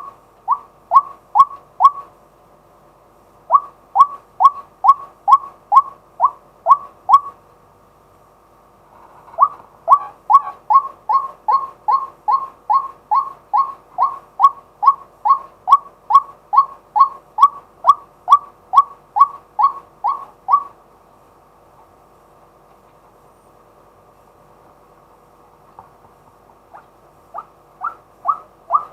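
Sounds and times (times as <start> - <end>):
waterhen calling kwak: 0.0 - 2.1, 3.5 - 7.4, 9.1 - 20.8, 26.6 - 28.9.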